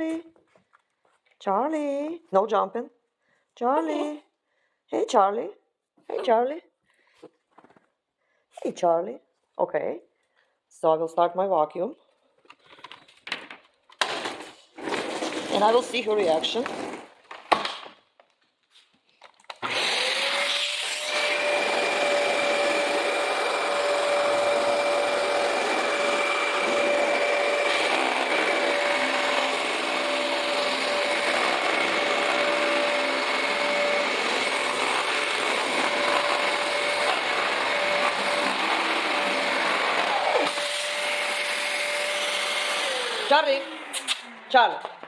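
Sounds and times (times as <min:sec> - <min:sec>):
vacuum cleaner motor whine: 0:19.6 - 0:44.2.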